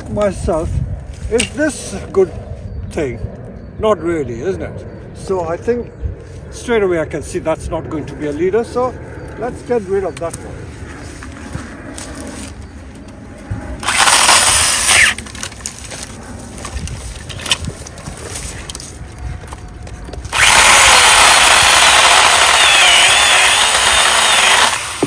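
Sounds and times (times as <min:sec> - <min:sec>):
pruning saw cutting branch: 0:13.8 - 0:19.0, 0:20.1 - 0:25.0.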